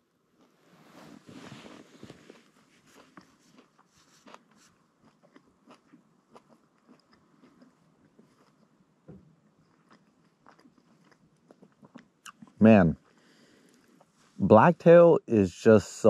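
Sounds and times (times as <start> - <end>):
person chewing: 0.2 - 14.2.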